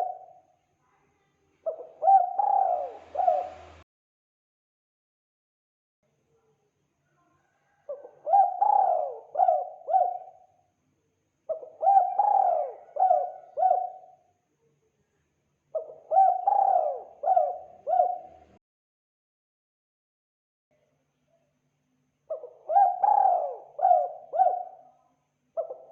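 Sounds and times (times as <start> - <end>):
dove cooing: 0.0 - 0.4, 1.7 - 3.8, 7.9 - 10.5, 11.5 - 14.2, 15.7 - 18.6, 22.3 - 24.9, 25.6 - 25.9.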